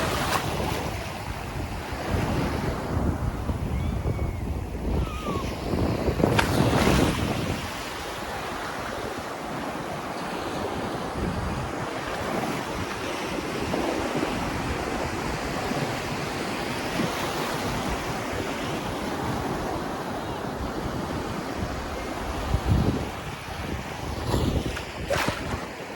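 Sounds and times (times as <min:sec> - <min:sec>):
surf washing onto beach: 0:00.0 - 0:03.6
wind buffeting microphone: 0:00.0 - 0:25.9.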